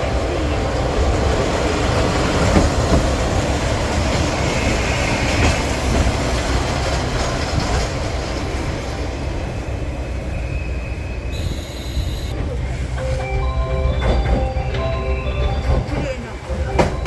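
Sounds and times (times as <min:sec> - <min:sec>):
train rumbling on rails: 0:00.0 - 0:17.0
train wheel squeal: 0:02.4 - 0:12.4.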